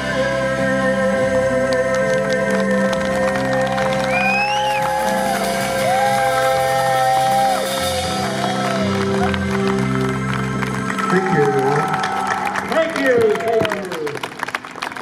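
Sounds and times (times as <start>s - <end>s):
live band sustained chords: 0.0s - 14.8s
high rising whoop: 3.5s - 9.3s, 11.5s - 12.6s
audience shouting: 3.6s - 8.9s.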